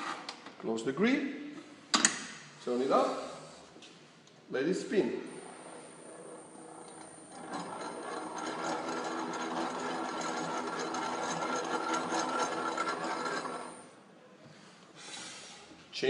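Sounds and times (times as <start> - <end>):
mixer whirring and rattling: 5.4 - 14.0.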